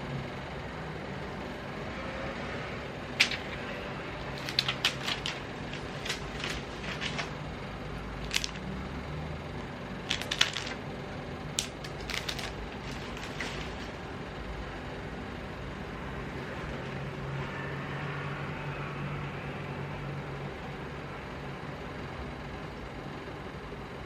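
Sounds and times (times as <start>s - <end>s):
low background hum: 0.0s - 24.0s
laptop keys tapping: 4.4s - 7.4s, 8.2s - 8.6s, 10.1s - 10.8s, 11.6s - 13.8s.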